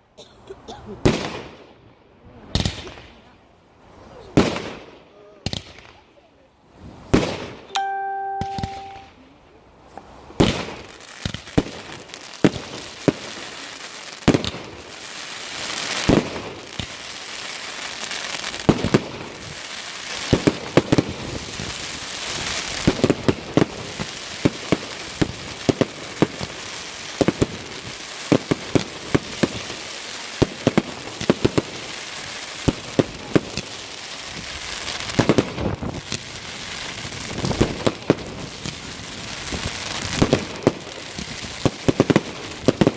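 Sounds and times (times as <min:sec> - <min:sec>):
fireworks exploding: 0:01.0 - 0:01.7, 0:02.5 - 0:03.2, 0:04.3 - 0:06.0, 0:07.0 - 0:09.2, 0:10.3 - 0:42.9
steady hiss: 0:09.9 - 0:42.9.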